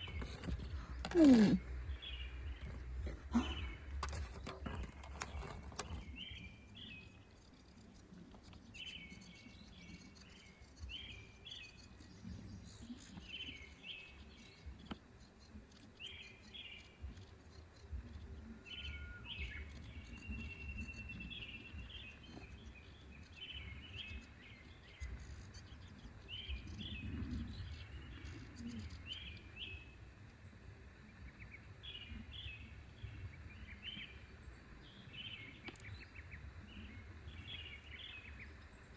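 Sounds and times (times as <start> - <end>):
small bird chirping: 0.0 - 30.0.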